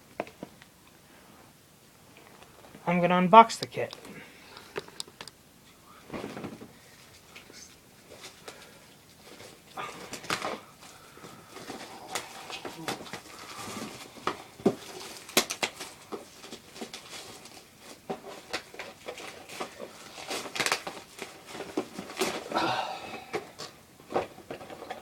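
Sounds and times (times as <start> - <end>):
rustling of packaging: 6.1 - 25.0.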